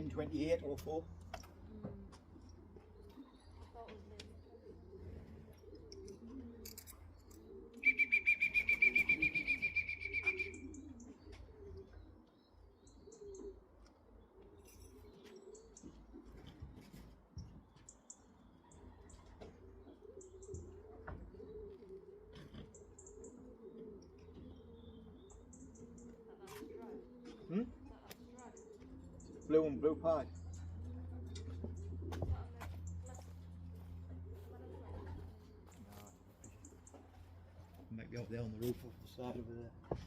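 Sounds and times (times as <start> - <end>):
pigeons cooing: 0.0 - 40.0.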